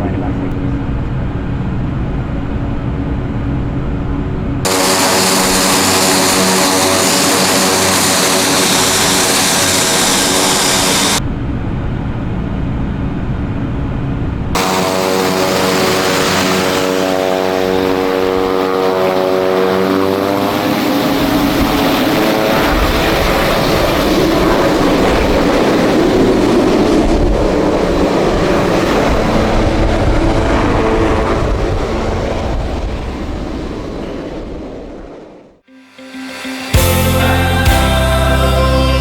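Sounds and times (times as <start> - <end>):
turboprop engine tone: 0.0 - 12.2, 13.9 - 34.7
rushing propeller noise: 4.6 - 11.2, 14.6 - 39.0.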